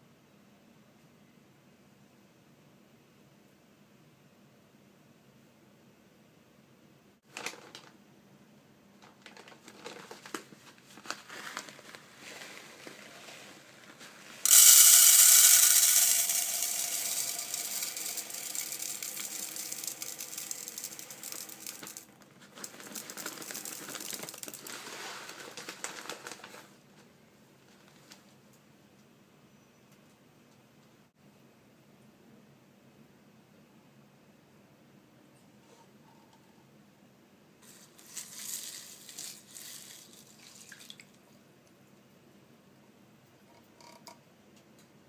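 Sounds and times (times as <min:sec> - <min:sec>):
plastic container rattling: 0:09.0 - 0:10.4, 0:14.5 - 0:26.6, 0:37.8 - 0:40.3.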